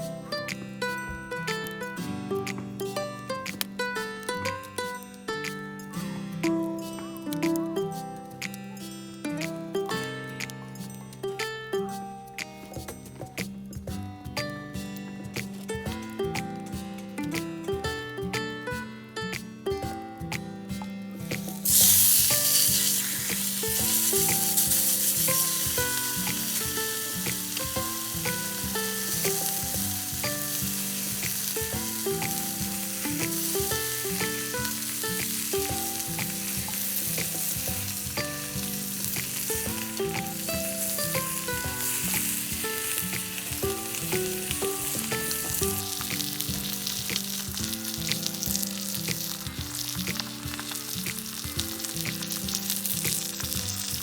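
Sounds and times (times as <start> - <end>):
background music: 0.0 - 54.0
food sizzling in a pan: 21.2 - 54.0.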